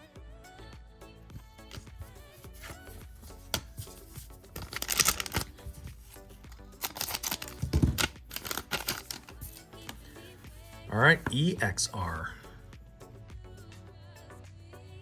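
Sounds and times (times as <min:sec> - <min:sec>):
background music: 0:00.0 - 0:15.0
card wrapper rustling and crinkling: 0:01.7 - 0:11.4.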